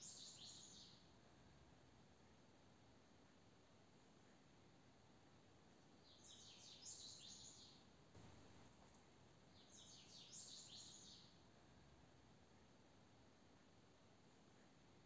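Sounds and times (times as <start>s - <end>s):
bird singing faintly: 6.0s - 8.6s, 9.5s - 11.4s.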